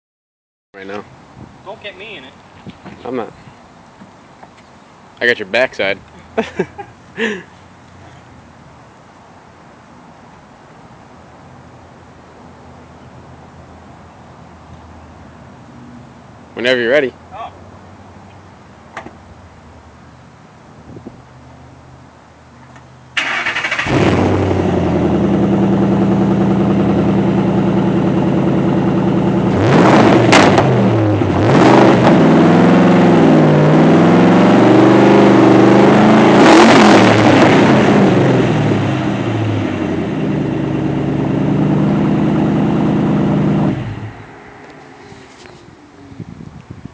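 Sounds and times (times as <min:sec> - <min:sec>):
car engine idling and revving: 0:21.6 - 0:46.2.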